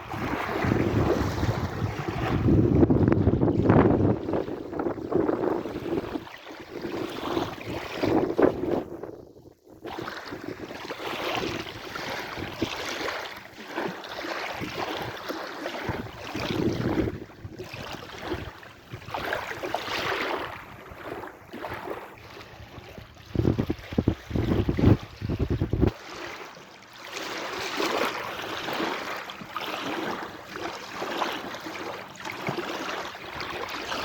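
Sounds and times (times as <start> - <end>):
sea waves washing in: 0.0 - 9.0
wind buffeting microphone: 0.0 - 12.8, 15.9 - 21.3, 22.4 - 26.0.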